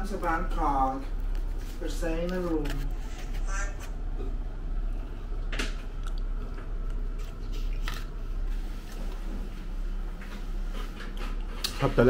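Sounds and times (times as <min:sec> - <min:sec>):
person chewing food: 0:04.1 - 0:09.3, 0:10.3 - 0:11.8
wet mouth clicks: 0:06.0 - 0:07.0.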